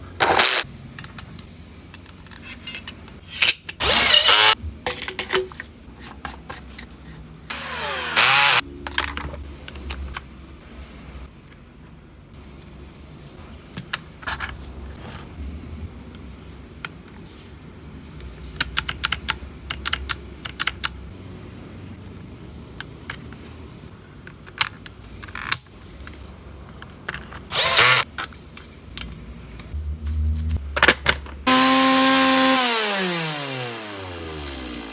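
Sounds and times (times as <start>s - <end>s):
chainsaw engine idling and revving: 7.5s - 8.6s, 27.6s - 28.0s, 31.5s - 34.9s.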